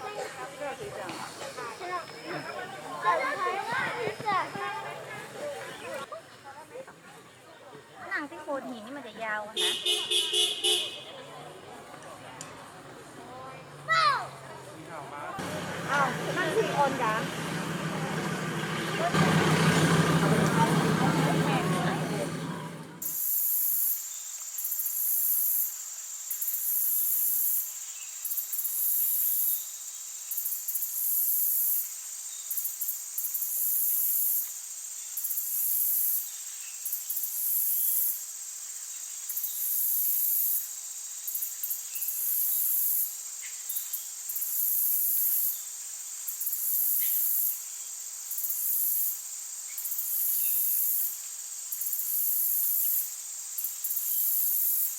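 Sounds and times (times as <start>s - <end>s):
insects buzzing in chorus: 8.0s - 11.6s, 23.0s - 54.9s.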